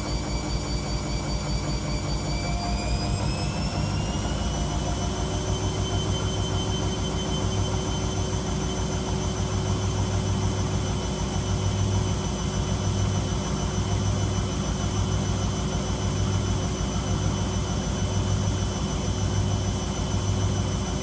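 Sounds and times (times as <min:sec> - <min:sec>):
rising motor whine: 0:00.0 - 0:09.0
low hum: 0:02.4 - 0:07.7.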